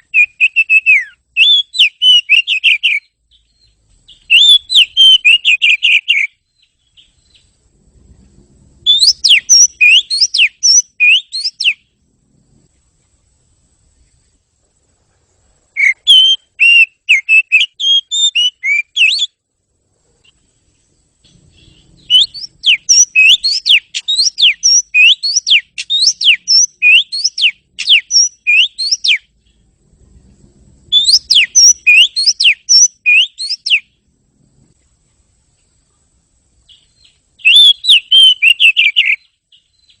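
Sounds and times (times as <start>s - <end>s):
bird singing whistled notes: 0.0s - 7.6s, 8.8s - 12.0s, 15.7s - 19.4s, 20.2s - 29.7s, 30.9s - 34.0s, 36.6s - 40.0s.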